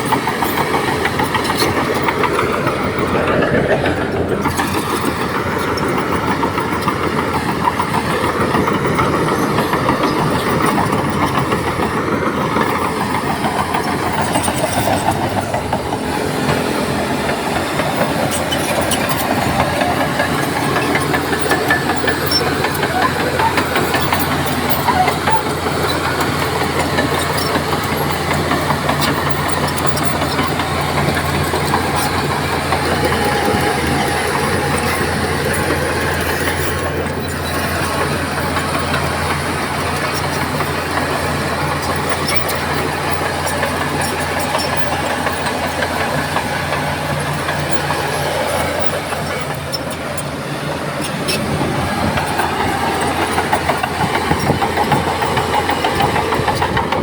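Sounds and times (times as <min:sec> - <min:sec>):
bulldozer diesel engine running: 0:00.0 - 0:57.0
mechanical rattle: 0:51.1 - 0:57.0.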